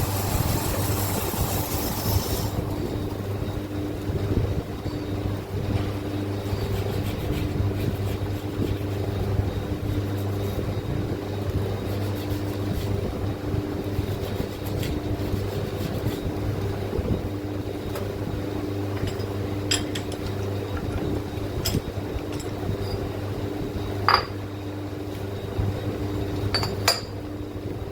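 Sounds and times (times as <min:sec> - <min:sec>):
machine hum: 0:00.0 - 0:07.3.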